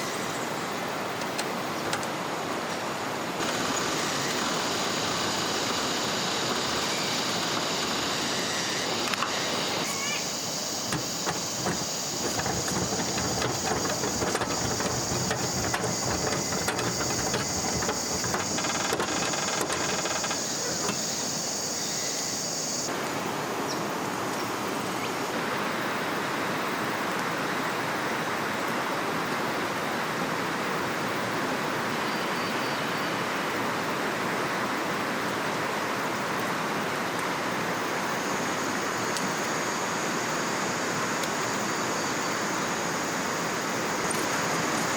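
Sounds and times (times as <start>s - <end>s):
river water flowing: 0.0s - 31.9s
high steady buzz: 3.4s - 22.9s
clicks and knocks: 10.8s - 21.1s.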